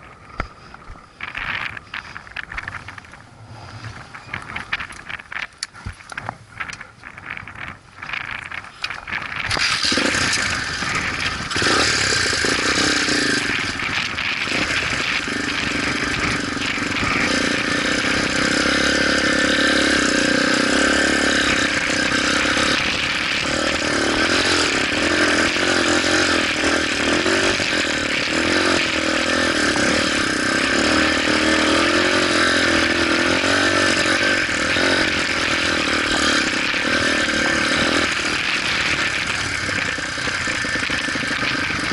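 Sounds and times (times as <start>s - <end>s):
motorcycle engine revving: 6.6s - 41.9s.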